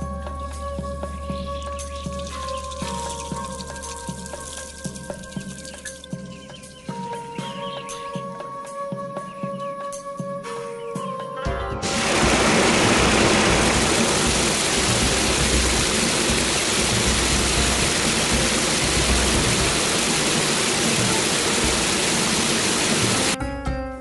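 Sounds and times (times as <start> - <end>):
water rushing and splashing: 2.0 - 6.2, 11.8 - 23.4.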